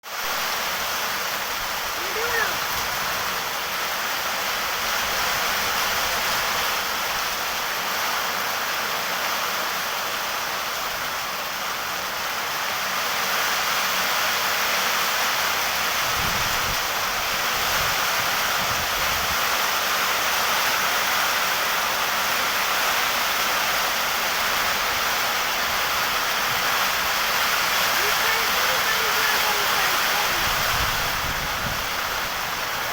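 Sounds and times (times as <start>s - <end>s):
heavy rain pouring: 0.0s - 32.9s.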